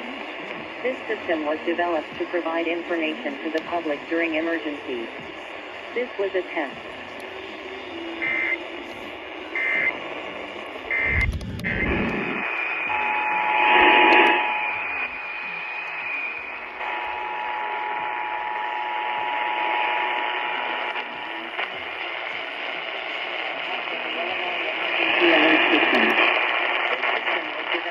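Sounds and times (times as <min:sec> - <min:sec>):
radio static: 0:00.0 - 0:27.9
data squawk bursts: 0:10.9 - 0:11.9
two-tone attention signal: 0:10.9 - 0:12.0.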